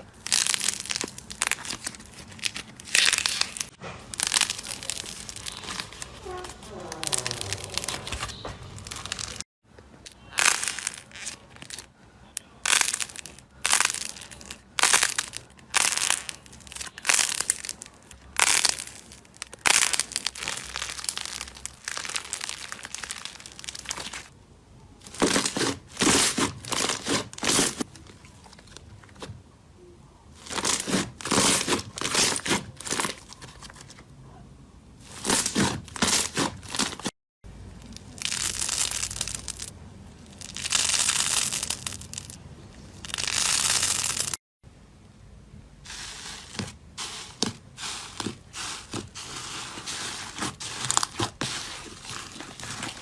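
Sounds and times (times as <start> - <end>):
slime squeezed crackling: 0.0 - 9.4, 10.1 - 24.3, 37.8 - 44.4.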